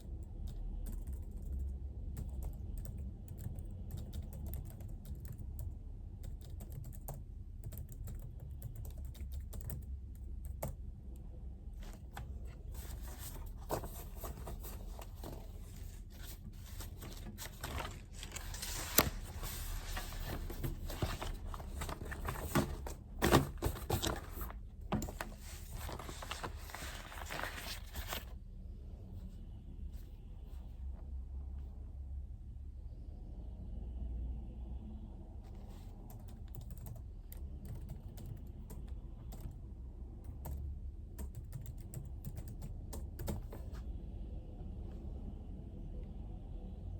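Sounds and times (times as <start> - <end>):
typing on computer keyboard: 0.0 - 10.9, 36.1 - 39.6, 40.2 - 43.7.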